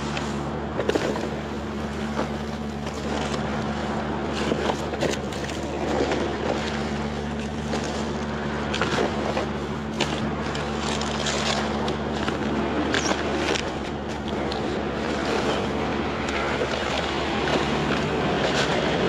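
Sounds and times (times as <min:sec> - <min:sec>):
low machine hum: 0:00.0 - 0:19.0
items rustling and clicking: 0:04.3 - 0:14.7.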